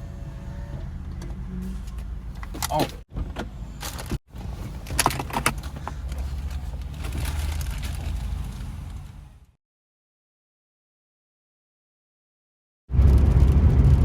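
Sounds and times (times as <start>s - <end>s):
car cabin rumble: 0.0s - 9.4s.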